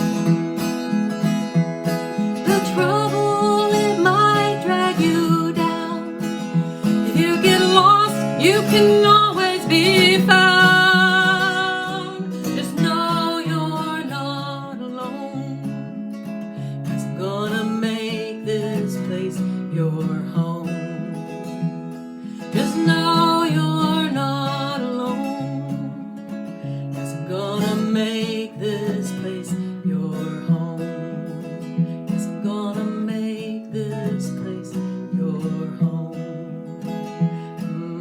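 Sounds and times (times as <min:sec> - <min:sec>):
acoustic guitar strumming: 0:00.0 - 0:38.0
wordless singing: 0:02.4 - 0:15.6.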